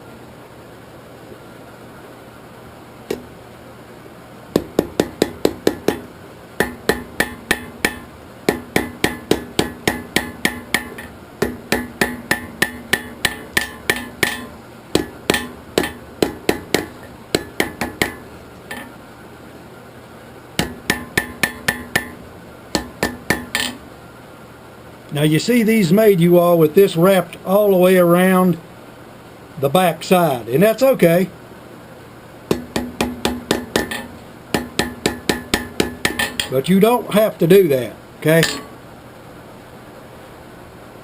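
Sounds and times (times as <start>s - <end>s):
steady hum: 0.0s - 41.0s
hammer striking steel on anvil: 4.6s - 19.0s, 20.6s - 22.2s, 22.8s - 23.8s, 32.5s - 36.6s, 38.3s - 38.8s.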